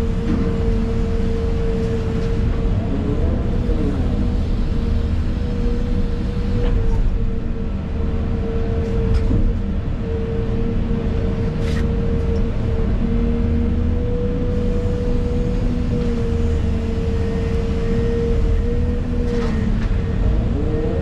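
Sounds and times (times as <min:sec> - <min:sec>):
excavator engine rumble: 0:00.0 - 0:21.0.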